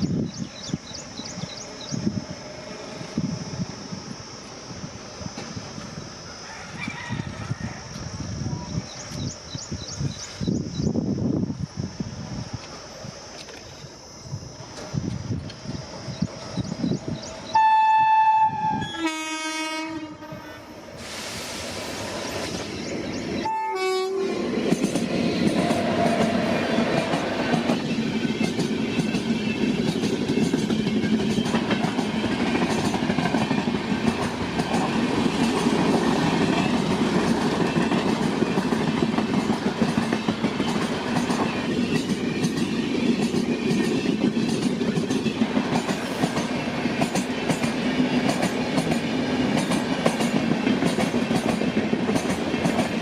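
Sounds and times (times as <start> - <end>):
train rumbling over rails: 0.0 - 53.0
locomotive horn: 17.5 - 20.8, 23.4 - 24.4.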